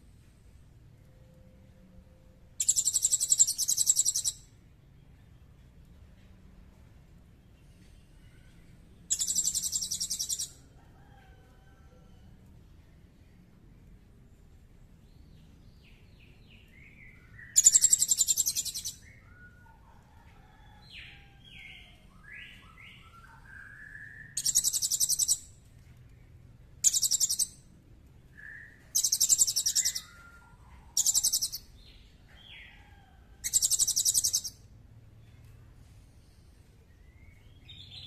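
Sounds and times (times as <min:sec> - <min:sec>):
bird whistled chirps: 0:02.6 - 0:04.4, 0:09.1 - 0:10.5, 0:17.4 - 0:19.6, 0:26.8 - 0:27.5, 0:28.4 - 0:31.6
songbird rattling trills: 0:17.6 - 0:18.9, 0:26.9 - 0:27.5.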